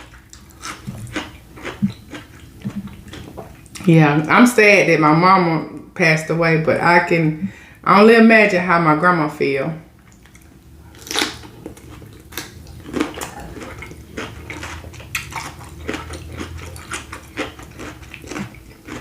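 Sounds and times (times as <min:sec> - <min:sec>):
wet smacking and chewing: 0:00.0 - 0:03.9, 0:10.0 - 0:19.0.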